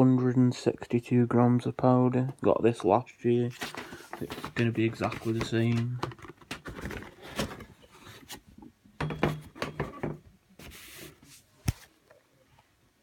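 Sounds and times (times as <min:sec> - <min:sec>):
cardboard rubbing and scraping: 0:03.5 - 0:08.4, 0:10.6 - 0:11.8.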